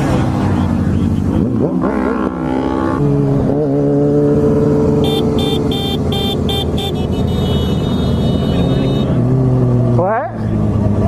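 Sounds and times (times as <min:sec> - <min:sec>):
motorcycle engine revving: 0:00.0 - 0:11.0
short high-pitched beeps: 0:05.0 - 0:09.1.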